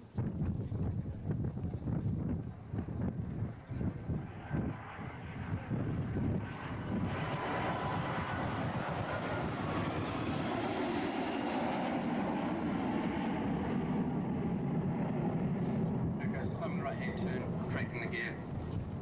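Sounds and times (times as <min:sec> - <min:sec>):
jet engines roaring: 0:02.9 - 0:19.0.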